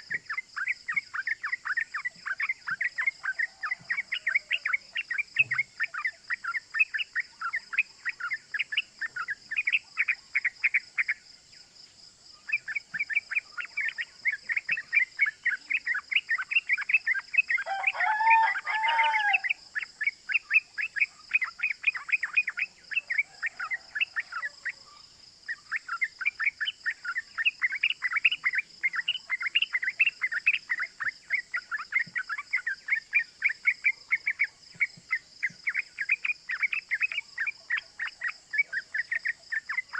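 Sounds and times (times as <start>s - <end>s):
lower looping bird phrase: 12.5s - 24.6s.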